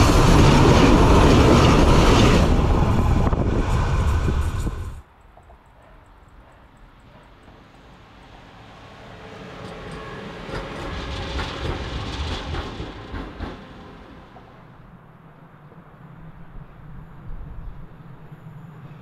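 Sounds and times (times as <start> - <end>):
electric locomotive crossing a bridge: 0.0 - 19.0.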